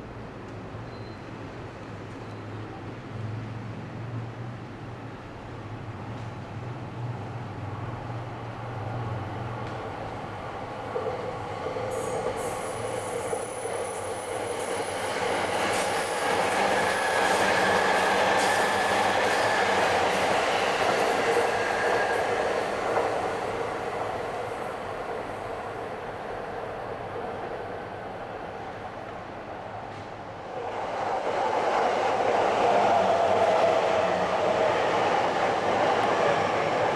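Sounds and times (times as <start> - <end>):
electric train passing: 2.8 - 36.9
high-pitched wheel squeal: 12.0 - 20.0.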